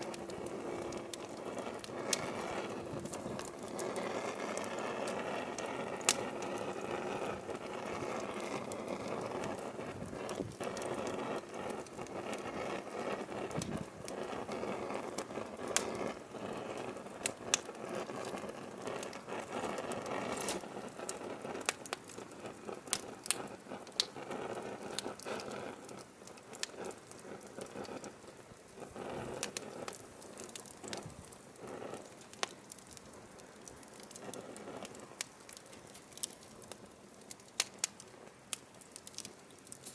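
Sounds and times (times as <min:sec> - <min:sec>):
rush of flames: 0:00.0 - 0:39.9
firewood pops and snaps: 0:15.2 - 0:15.9, 0:22.8 - 0:24.2, 0:29.4 - 0:39.9.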